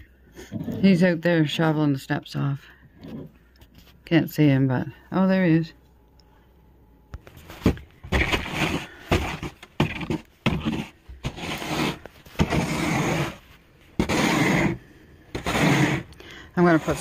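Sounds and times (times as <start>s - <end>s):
snow shovel scraping steps: 7.4s - 17.0s.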